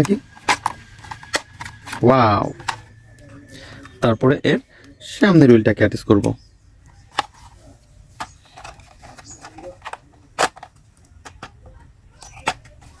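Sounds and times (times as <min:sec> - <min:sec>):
small plastic parts clicking: 0:00.0 - 0:04.0, 0:08.2 - 0:13.0.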